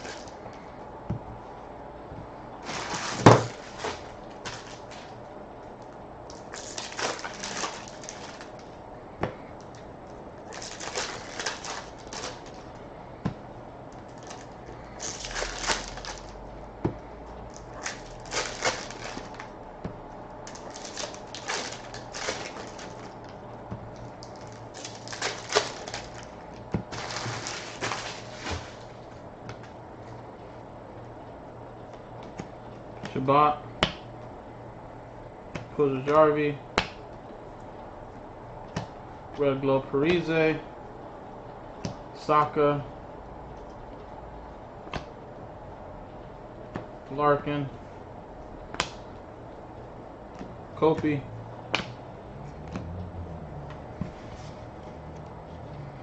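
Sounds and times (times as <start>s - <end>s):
trading cards rustling and sliding: 2.6s - 5.1s, 23.9s - 29.1s.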